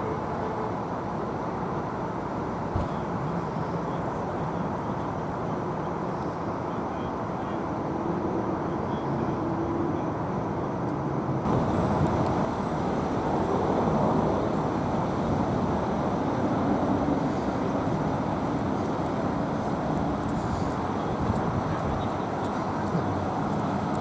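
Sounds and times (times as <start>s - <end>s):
road traffic passing: 7.6s - 24.0s.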